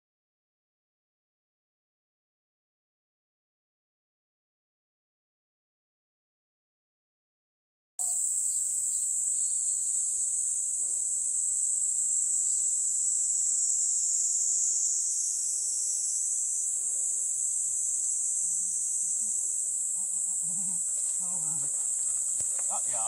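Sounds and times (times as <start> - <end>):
insects chorus: 8.0 - 23.0.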